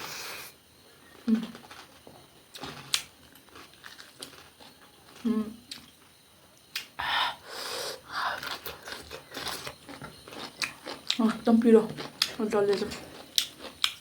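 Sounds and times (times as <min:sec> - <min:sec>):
chewing with mouth clicks: 0:08.4 - 0:14.0.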